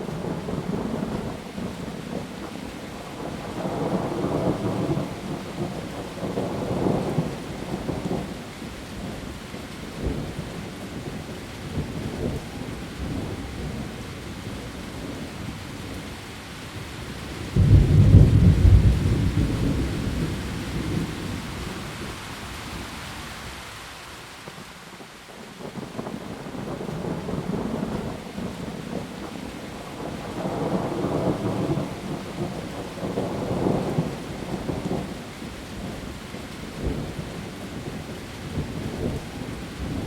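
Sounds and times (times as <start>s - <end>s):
heavy rain on leaves: 0.0s - 40.0s
thunder rolling: 17.5s - 21.4s.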